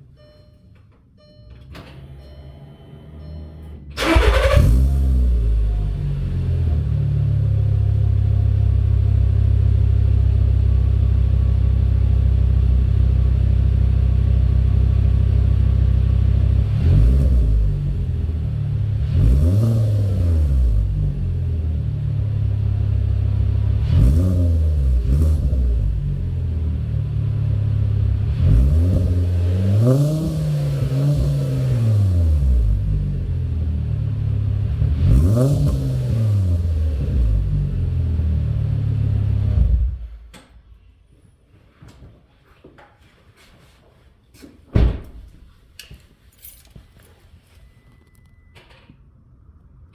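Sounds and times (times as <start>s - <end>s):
car engine idling and revving: 1.9s - 40.4s.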